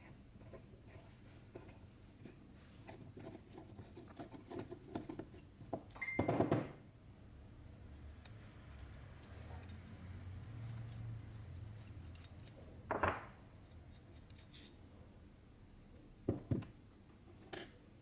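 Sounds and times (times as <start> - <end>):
faint low hum: 0.0 - 18.0
metal parts and tools handled: 8.2 - 12.7, 13.6 - 14.8.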